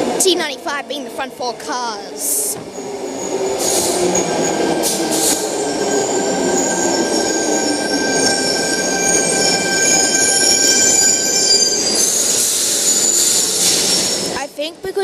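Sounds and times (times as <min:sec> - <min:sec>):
train cars rumbling: 0:02.0 - 0:14.4
train wheels squealing: 0:05.2 - 0:14.4.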